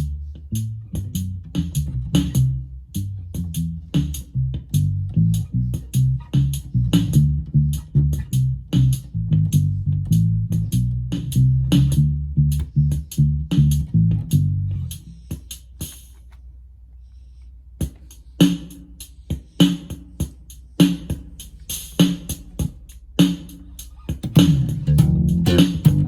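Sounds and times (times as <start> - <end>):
electric bass: 0.0 - 15.3, 24.2 - 26.0
drum machine beat: 3.4 - 16.2, 17.8 - 26.0.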